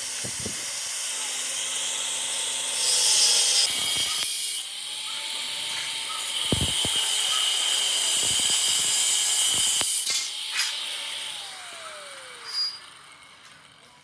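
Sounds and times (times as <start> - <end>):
motor winding down: 0.0 - 14.0
power tool cutting metal: 0.0 - 14.0.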